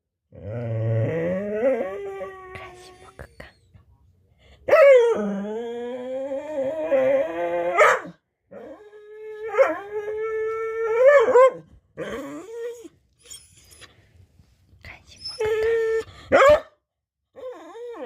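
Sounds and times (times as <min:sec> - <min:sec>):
dog howling: 0:00.6 - 0:02.6, 0:04.7 - 0:12.9.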